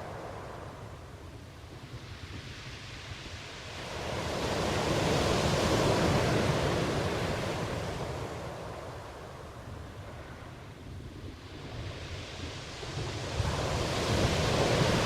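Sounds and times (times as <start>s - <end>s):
ocean wave: 1.9s - 10.8s, 11.4s - 15.0s.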